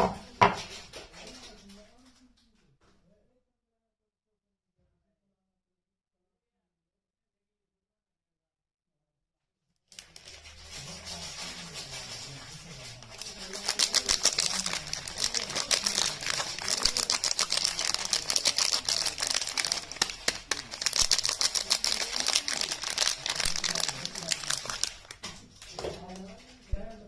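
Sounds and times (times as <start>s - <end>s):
soap wrapping crinkling: 9.9s - 26.3s.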